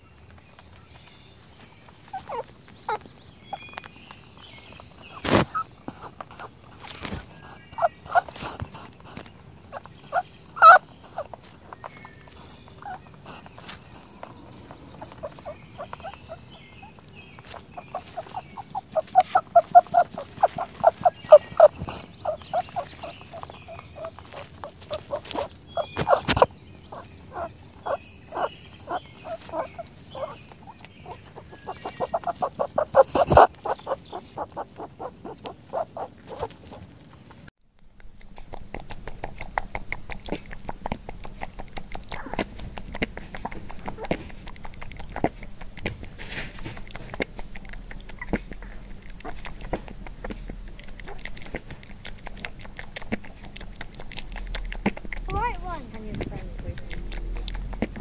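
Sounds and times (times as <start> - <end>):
rapid short animal calls: 2.1 - 3.0, 5.0 - 11.4, 12.3 - 37.1.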